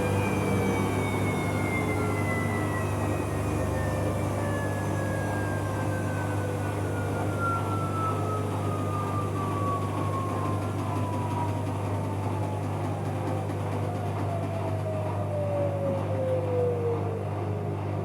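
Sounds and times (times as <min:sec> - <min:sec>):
low hum: 0:00.0 - 0:09.0
washing machine motor whine: 0:00.0 - 0:18.0.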